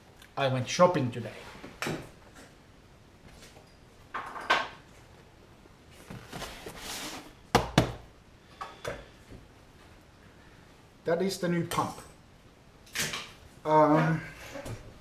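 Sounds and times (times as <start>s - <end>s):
knocks on hard surface: 7.5s - 8.0s.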